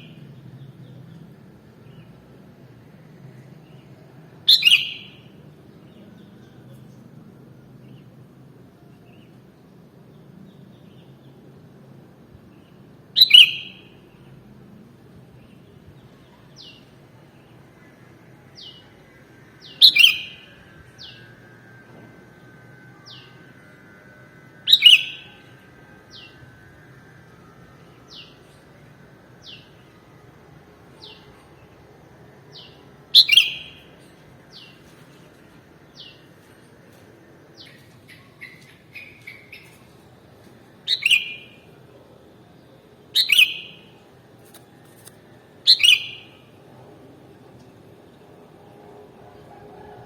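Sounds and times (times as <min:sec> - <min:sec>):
bulbul calling: 0:45.7 - 0:46.3.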